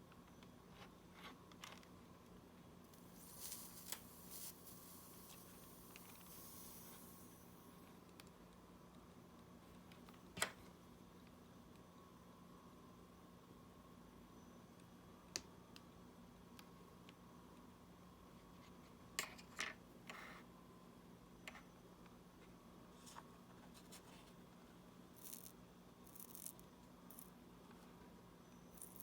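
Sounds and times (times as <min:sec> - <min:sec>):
low steady hum: 0:00.0 - 0:29.0
small hand tools clicking and scratching: 0:25.2 - 0:27.4, 0:28.8 - 0:29.0.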